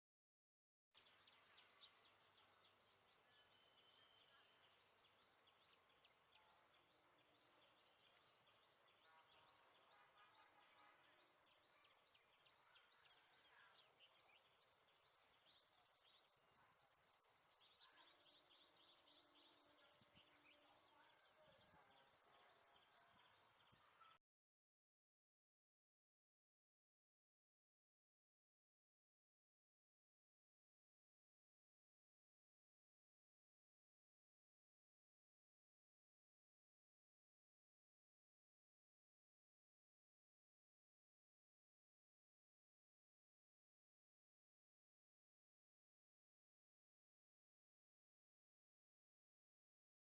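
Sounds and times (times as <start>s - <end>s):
birds chirping: 1.0s - 24.2s.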